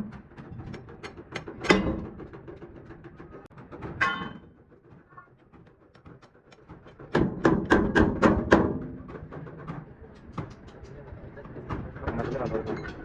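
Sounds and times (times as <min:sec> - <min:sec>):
hammer striking metal tank: 0:01.4 - 0:02.3, 0:03.9 - 0:04.6, 0:07.1 - 0:09.6.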